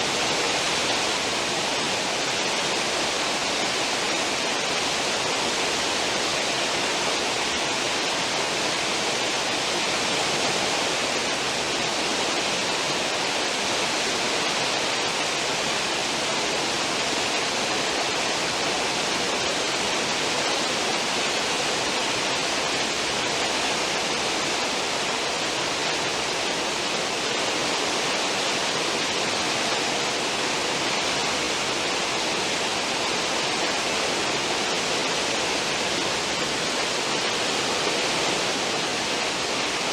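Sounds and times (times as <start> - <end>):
ship wake rushing water: 0.0 - 39.9.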